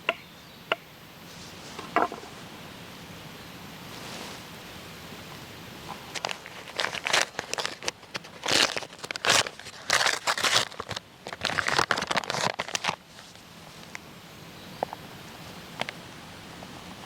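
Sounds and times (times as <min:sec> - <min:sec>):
faint steady hiss: 0:00.0 - 0:17.0
crinkling rustle: 0:01.3 - 0:02.5, 0:03.9 - 0:04.6, 0:05.3 - 0:14.0.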